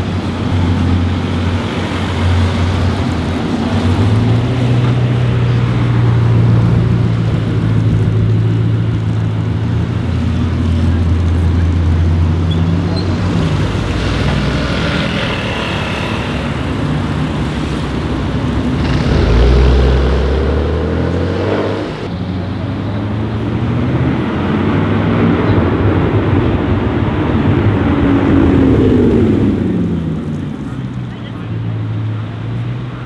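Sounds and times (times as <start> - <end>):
sports car accelerating: 13.5 - 26.2
car engine revving deep rumble: 16.6 - 32.9.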